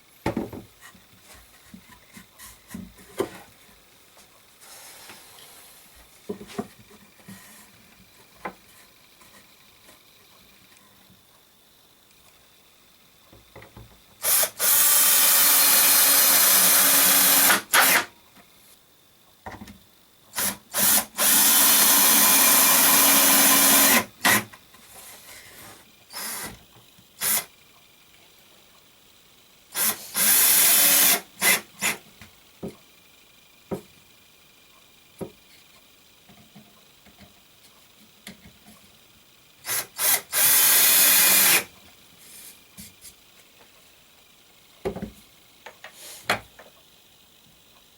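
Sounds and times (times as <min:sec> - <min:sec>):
power drill drilling wood: 0:14.2 - 0:18.1, 0:20.4 - 0:24.4, 0:26.1 - 0:26.6, 0:27.2 - 0:27.5, 0:29.8 - 0:32.0, 0:39.6 - 0:41.7.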